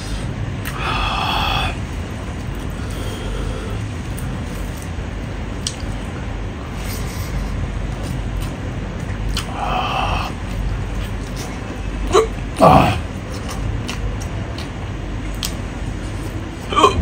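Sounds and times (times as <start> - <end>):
wet chewing and mouth clicks: 7.9 - 9.6, 10.4 - 11.7, 13.2 - 16.4
low rumble: 16.5 - 17.0
man's short vocal sound: 16.7 - 17.0.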